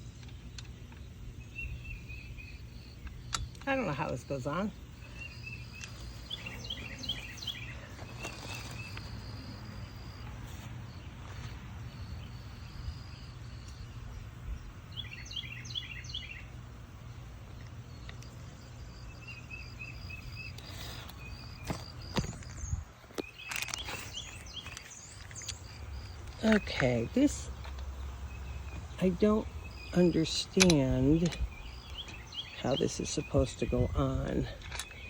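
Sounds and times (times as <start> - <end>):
faint high insect trill: 0.0 - 22.7
steady low hum: 0.0 - 23.1
bird chirping: 0.0 - 35.0.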